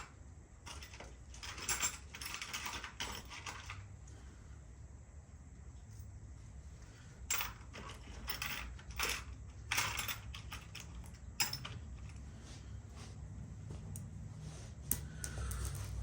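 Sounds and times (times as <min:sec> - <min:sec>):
small metal parts clinking: 0:00.0 - 0:03.9, 0:07.3 - 0:12.2.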